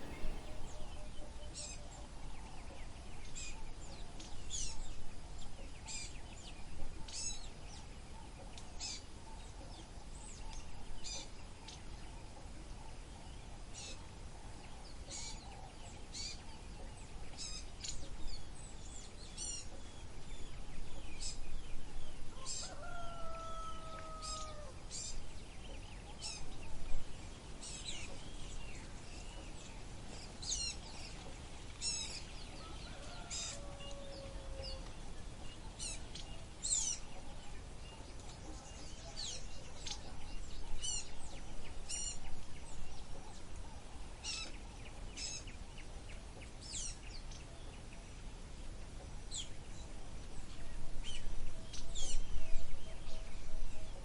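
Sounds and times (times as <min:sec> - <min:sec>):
birds chirping: 0:00.0 - 0:00.9
low background noise: 0:00.0 - 0:54.0.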